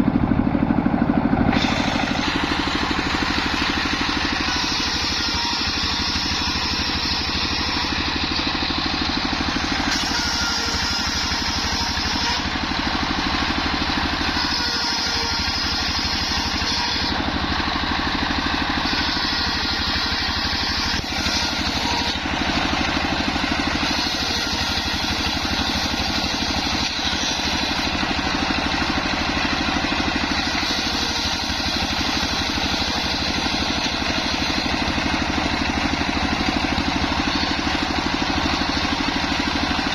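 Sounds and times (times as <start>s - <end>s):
circular sawmill running: 0.0s - 39.9s
saw blade hissing through wood: 1.6s - 12.5s, 14.2s - 17.2s, 18.7s - 28.0s, 30.2s - 35.2s.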